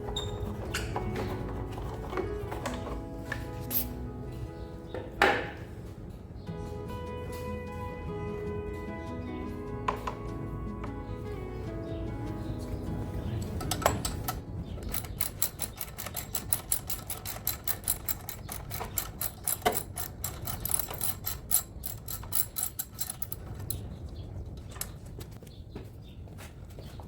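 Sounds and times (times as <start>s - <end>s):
rapid mechanical clicking: 13.6s - 23.8s.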